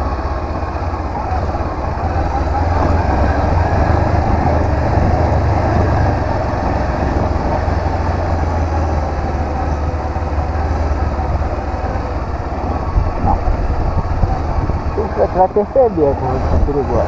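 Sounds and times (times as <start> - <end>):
motorcycle engine rumble: 0.0 - 17.0
riding wind rush: 0.0 - 17.0.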